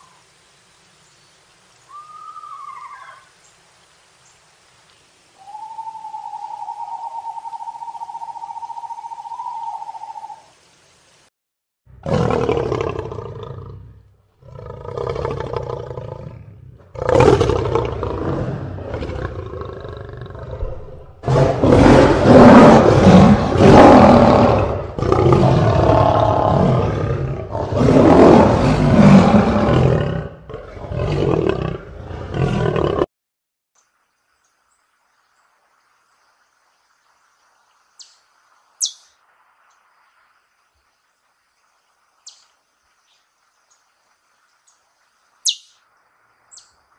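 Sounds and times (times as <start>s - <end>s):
lion roaring: 12.0s - 33.1s.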